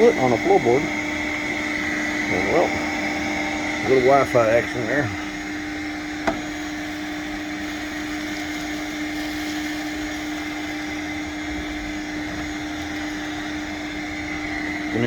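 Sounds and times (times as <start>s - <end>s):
shop vacuum humming: 0.0s - 15.0s.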